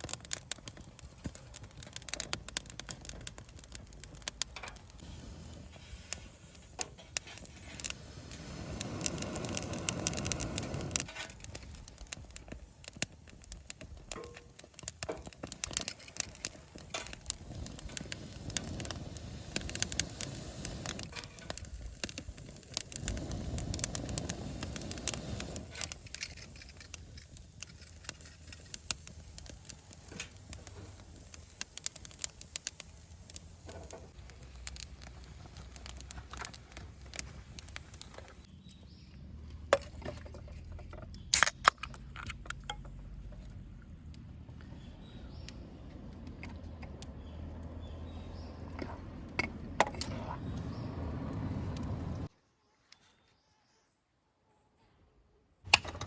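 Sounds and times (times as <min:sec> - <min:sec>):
campfire crackling and popping: 0:00.0 - 0:52.3, 0:55.7 - 0:56.0.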